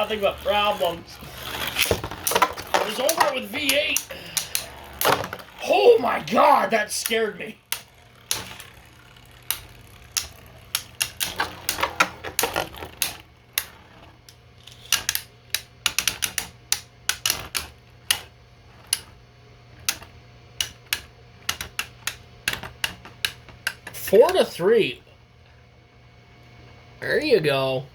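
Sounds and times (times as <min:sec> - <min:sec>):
steady low hum: 0:00.0 - 0:27.9
spinning tops clashing: 0:06.4 - 0:13.2.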